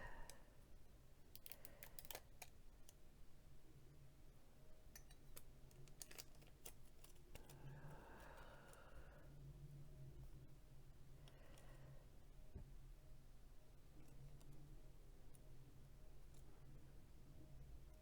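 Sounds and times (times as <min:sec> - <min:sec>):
tape clicks and rustling: 0:05.0 - 0:07.7.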